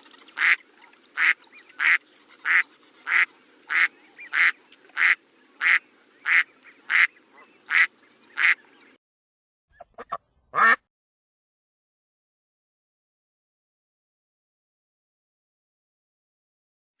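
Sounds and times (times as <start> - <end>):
duck quacking: 0.2 - 0.6, 1.2 - 8.6, 9.8 - 10.9.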